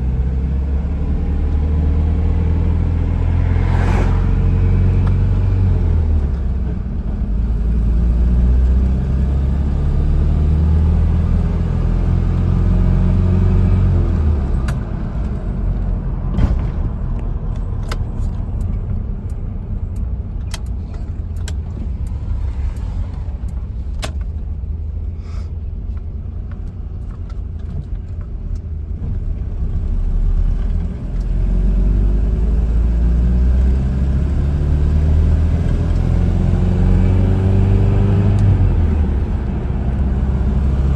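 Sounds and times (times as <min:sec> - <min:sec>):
pickup engine rumbling: 0:00.0 - 0:40.9
sharp clicks and knocks: 0:16.3 - 0:24.5.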